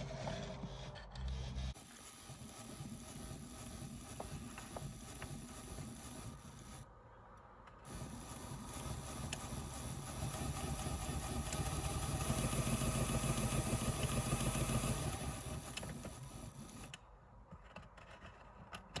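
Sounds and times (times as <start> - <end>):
model locomotive motor whirring: 1.5 - 6.9, 7.9 - 17.0.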